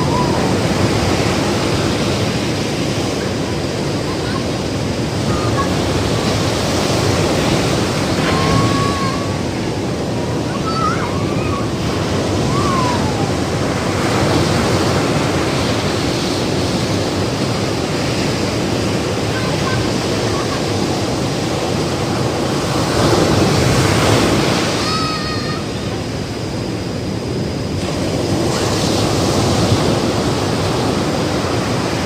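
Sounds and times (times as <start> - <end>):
ocean waves breaking on beach: 0.0 - 32.0.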